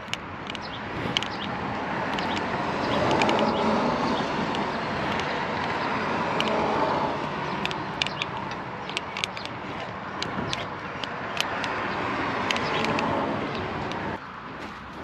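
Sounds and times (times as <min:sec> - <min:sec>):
sharp clicks and ticks: 0:00.0 - 0:14.2
steady vehicle noise: 0:00.0 - 0:15.0.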